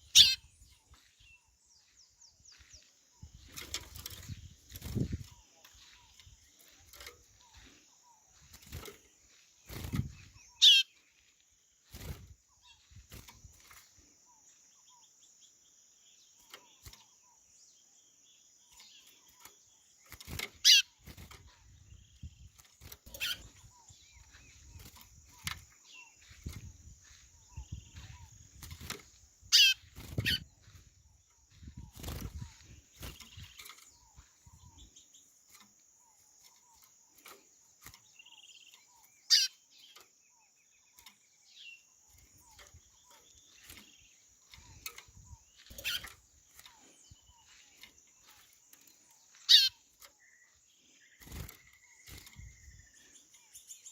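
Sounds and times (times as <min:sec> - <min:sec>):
bird whistled calls: 0:00.0 - 0:00.4.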